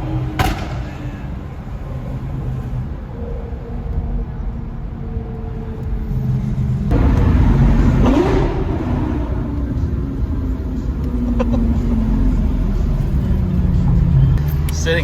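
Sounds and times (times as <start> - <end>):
loud sports car engine revving: 6.9 - 14.3.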